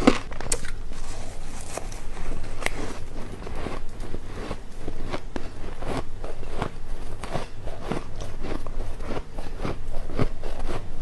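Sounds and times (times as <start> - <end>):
teeth crunching ice: 2.6 - 10.9.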